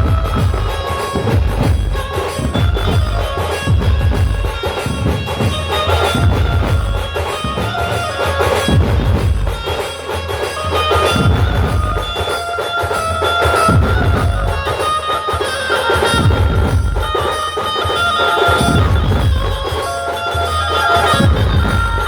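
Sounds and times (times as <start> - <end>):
bass drum beats: 0.0 - 12.5, 13.1 - 15.0, 16.0 - 17.4, 18.5 - 19.9, 21.0 - 22.0
band music: 0.0 - 22.0.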